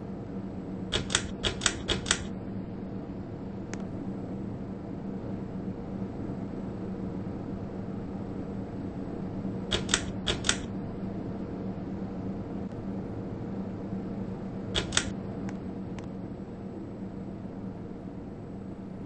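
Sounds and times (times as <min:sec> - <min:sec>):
ceiling fan humming: 0:00.0 - 0:19.0
short sharp clicks: 0:01.0 - 0:02.3, 0:09.7 - 0:10.7, 0:14.8 - 0:15.1.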